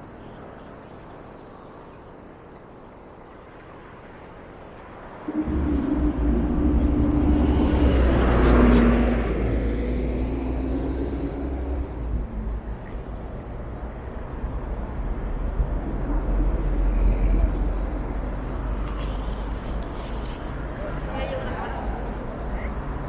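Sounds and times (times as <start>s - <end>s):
steady traffic wash: 0.0s - 23.0s
vehicle passing close by: 5.3s - 12.7s
constant low rumble: 5.3s - 22.8s.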